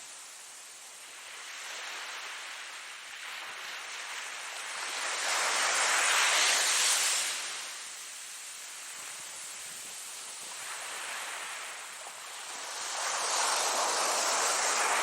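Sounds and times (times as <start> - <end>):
ocean waves washing in: 1.0 - 15.0
wave breaking on shore: 10.2 - 15.0.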